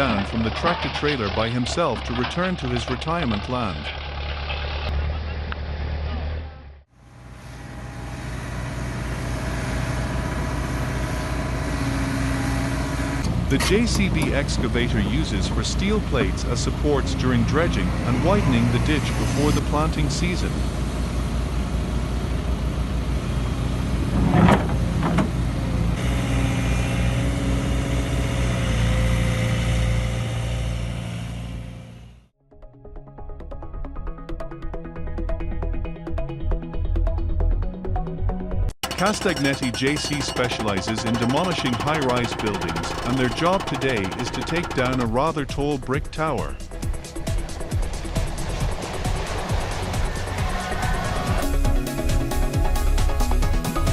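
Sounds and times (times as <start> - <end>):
diesel engine running: 0.0 - 6.1, 6.7 - 32.3, 38.8 - 53.7
hydraulic whine: 38.8 - 45.2
loud metal clanks: 38.8 - 45.2.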